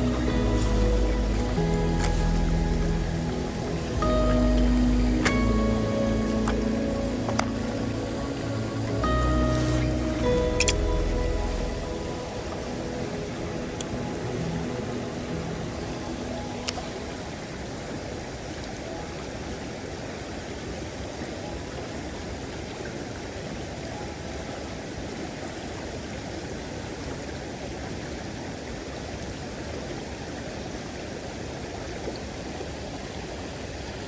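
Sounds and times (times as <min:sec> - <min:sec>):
mountain stream water rushing: 0:00.0 - 0:34.0.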